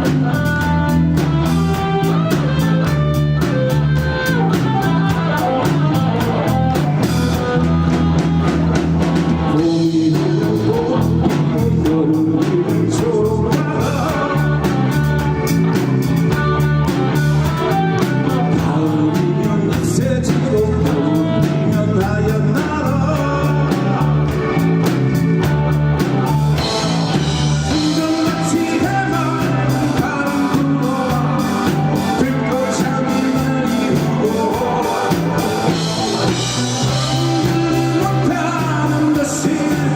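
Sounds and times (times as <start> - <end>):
person singing: 0.0 - 25.1, 26.0 - 39.9
bass guitar: 0.0 - 39.9
drum kit beat: 0.0 - 39.9
electric guitar: 0.0 - 39.9.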